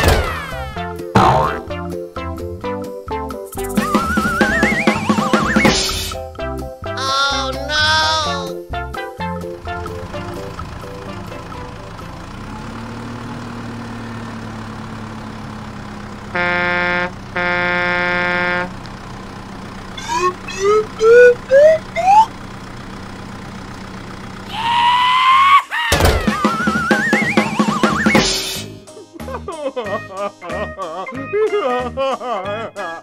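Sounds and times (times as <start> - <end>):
cartoon engine hum: 0.0 - 1.9, 3.5 - 6.2, 6.9 - 13.3, 16.0 - 28.3
rising whistle-like chirps: 3.5 - 5.9, 20.0 - 22.3, 26.3 - 28.2
horn honks: 16.3 - 18.8.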